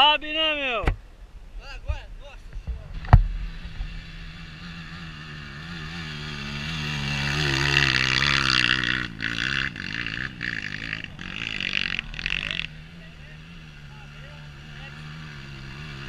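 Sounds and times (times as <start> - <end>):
dirt bike engine revving: 2.9 - 16.0.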